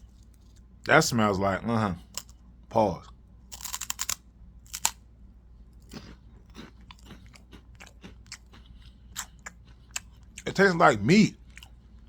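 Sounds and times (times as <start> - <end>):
soft chewing: 0.0 - 0.9, 2.0 - 12.0
crunching corn snack: 3.5 - 5.0, 5.7 - 10.6.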